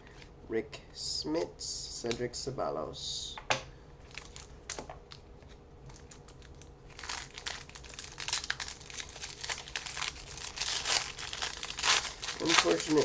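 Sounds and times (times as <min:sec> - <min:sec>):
wrapper crinkling and tearing: 0:04.0 - 0:05.2, 0:05.9 - 0:13.0.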